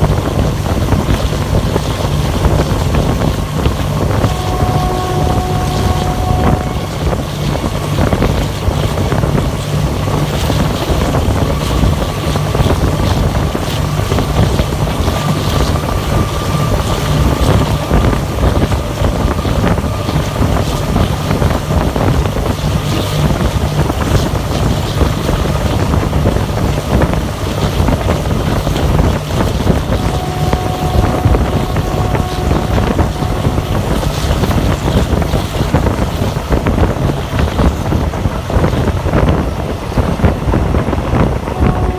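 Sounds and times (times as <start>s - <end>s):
rush of wind: 0.0s - 41.9s
train wheels rumbling on rails: 0.0s - 41.9s
faint steady whine: 29.4s - 36.2s.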